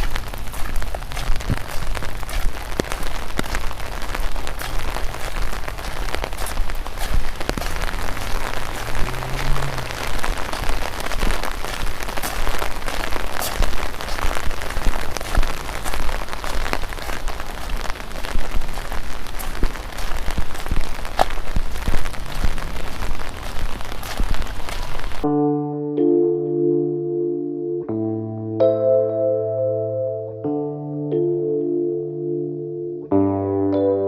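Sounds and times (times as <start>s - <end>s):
rain falling: 0.0s - 25.3s.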